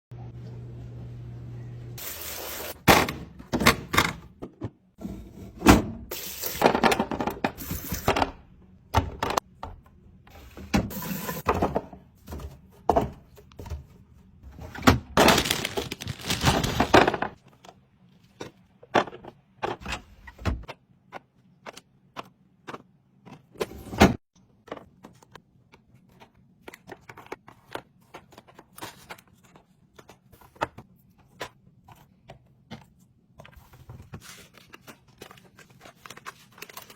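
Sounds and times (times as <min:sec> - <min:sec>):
wrappers crinkling and rustling: 0:15.2 - 0:17.2, 0:34.2 - 0:36.9.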